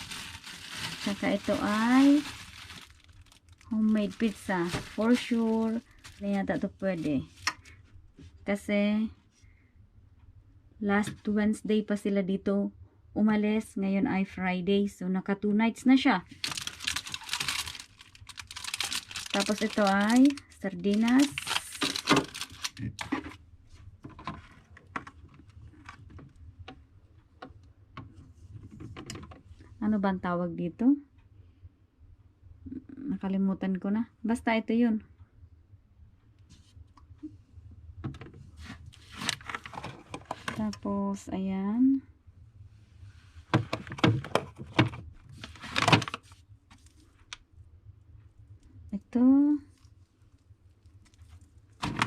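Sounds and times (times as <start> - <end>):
packages rustling and scraping: 0.0 - 7.5, 16.3 - 23.4, 38.5 - 40.7, 43.4 - 47.2.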